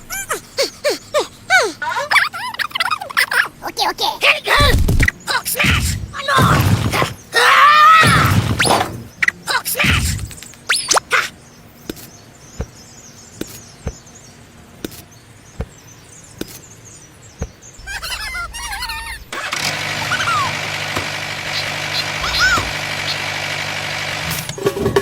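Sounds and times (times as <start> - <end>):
small tractor engine running: 4.6 - 7.3, 17.8 - 25.0.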